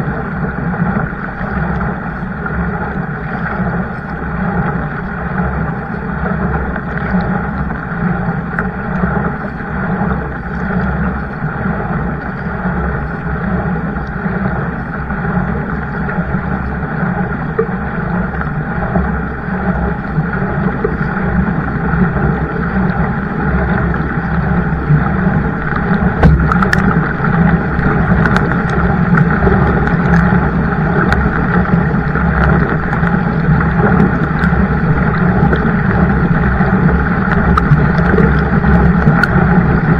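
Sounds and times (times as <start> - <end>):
kayak rushing through water: 0.0 - 39.9
sharp clicks or knocks: 26.2 - 27.0.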